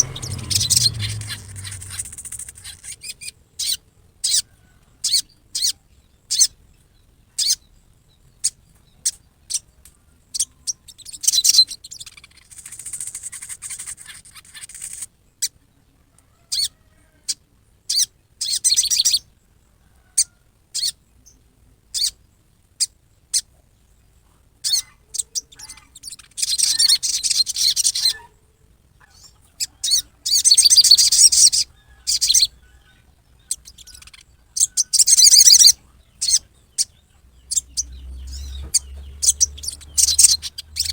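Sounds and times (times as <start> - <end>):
bird harsh chipping calls: 0.0 - 4.4, 24.6 - 28.3, 29.0 - 40.9
bird rough chatter: 0.0 - 4.4, 11.2 - 15.1, 24.6 - 28.4, 29.0 - 40.9.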